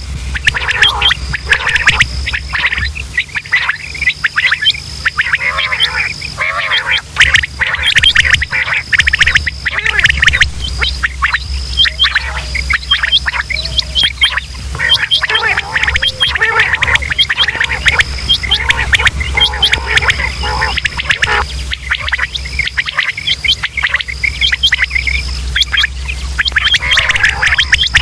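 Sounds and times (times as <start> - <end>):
quail calling: 0.0 - 28.0
steady low hum: 0.0 - 28.0
thin high tone: 7.0 - 28.0.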